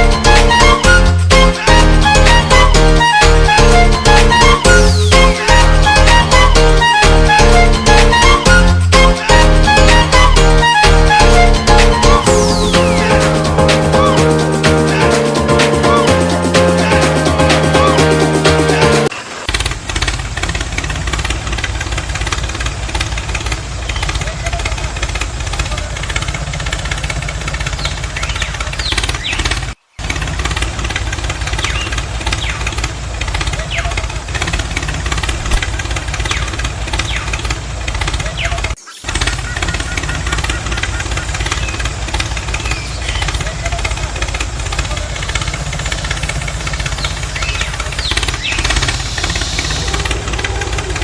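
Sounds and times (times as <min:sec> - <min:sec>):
chugging motor: 0:00.0 - 0:51.0
tractor engine knocking rattle: 0:19.2 - 0:51.0.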